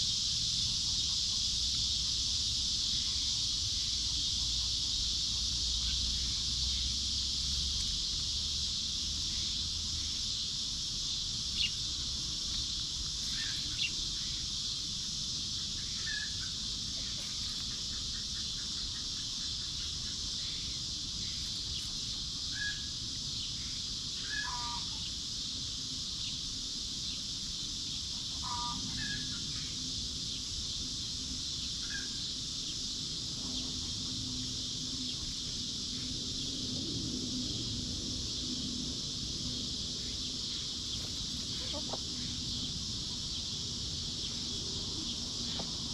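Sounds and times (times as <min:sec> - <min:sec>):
insects droning: 0:00.0 - 0:45.9
birds calling: 0:28.4 - 0:29.5, 0:40.5 - 0:42.8
chickens calling: 0:40.9 - 0:42.4.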